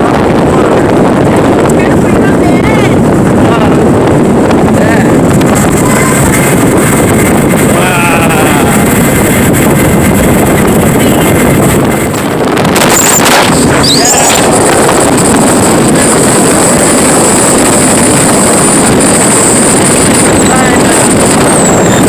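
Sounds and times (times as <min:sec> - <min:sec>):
motorboat engine: 0:00.0 - 0:22.0
wind buffeting microphone: 0:00.0 - 0:22.0
high-pitched gliding sound: 0:12.8 - 0:15.1.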